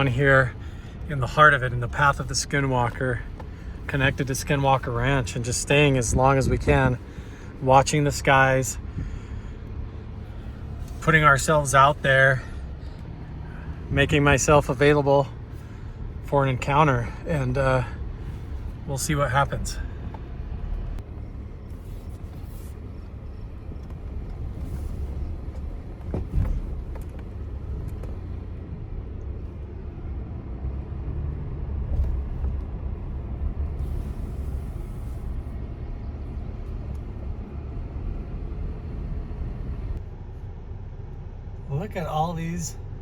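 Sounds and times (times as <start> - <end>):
truck engine and tyres rumbling: 0.0 - 43.0.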